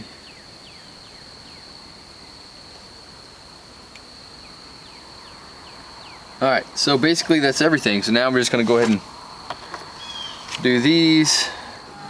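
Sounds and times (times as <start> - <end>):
insects trilling: 0.0 - 12.0
faint falling chirps: 6.8 - 12.0.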